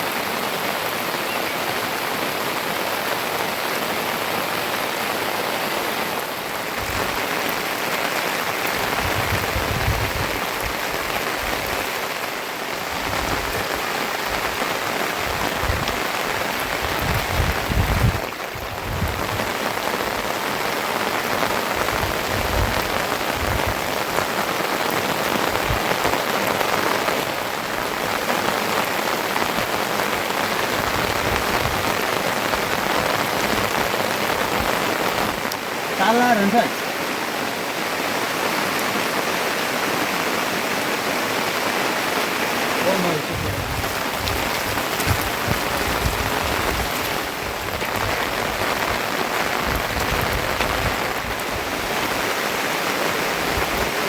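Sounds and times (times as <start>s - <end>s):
steady rain hiss: 0.0s - 54.0s
low rumbles: 43.2s - 48.2s.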